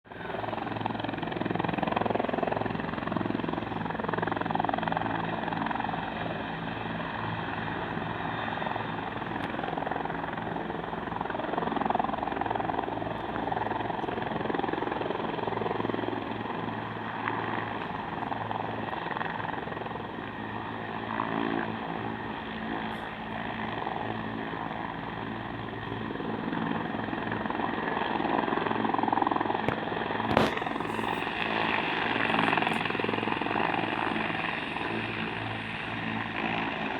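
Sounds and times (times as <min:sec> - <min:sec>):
helicopter engine and rotor: 0:00.0 - 0:36.9
short sharp knock: 0:29.7 - 0:31.2.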